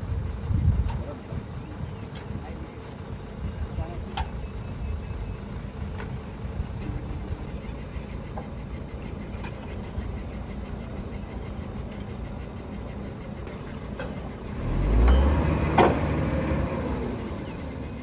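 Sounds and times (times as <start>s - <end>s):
heavy engine droning: 0.0s - 18.0s.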